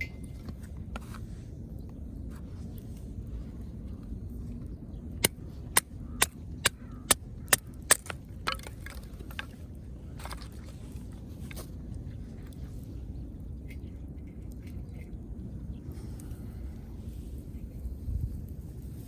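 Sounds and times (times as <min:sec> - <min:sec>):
steady low rumble: 0:00.0 - 0:19.0
sharp wood cracks: 0:05.2 - 0:09.6.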